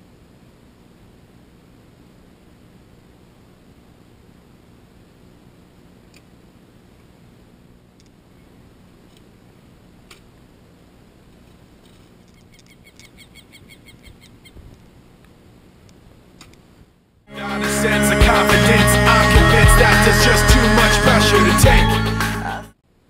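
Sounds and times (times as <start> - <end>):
open-air ambience: 0.0 - 23.0
bird chirping: 12.3 - 14.6.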